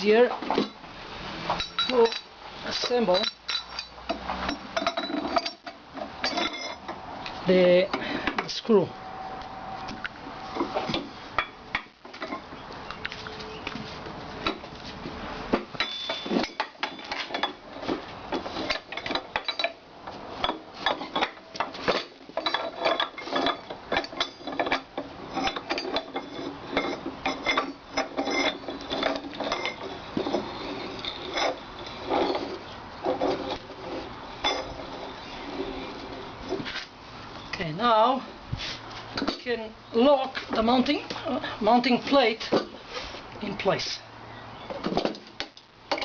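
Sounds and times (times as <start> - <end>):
iron vise parts clinking and scraping: 1.5 - 8.7, 10.5 - 12.5, 15.6 - 37.0, 44.7 - 46.0.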